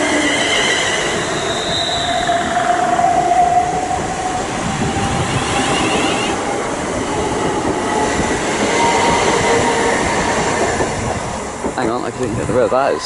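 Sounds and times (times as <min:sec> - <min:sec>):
train wheels rushing on rail: 0:00.0 - 0:13.0.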